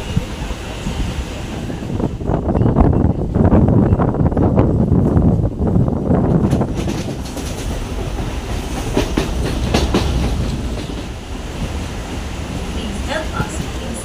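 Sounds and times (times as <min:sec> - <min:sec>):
train rumble: 0:00.0 - 0:14.0
wheels clacking over rail joints: 0:06.3 - 0:14.0.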